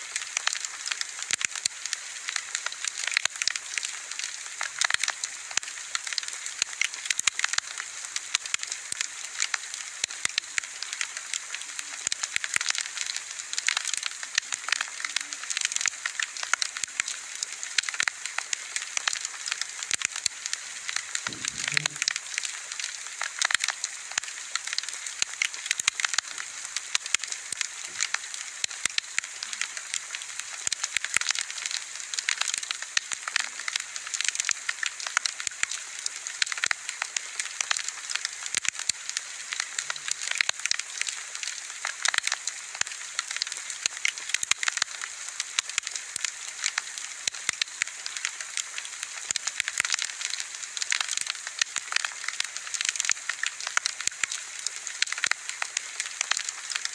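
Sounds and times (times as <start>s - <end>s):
soft steady hiss: 0.0s - 30.9s
bonfire crackling and popping: 0.1s - 56.9s.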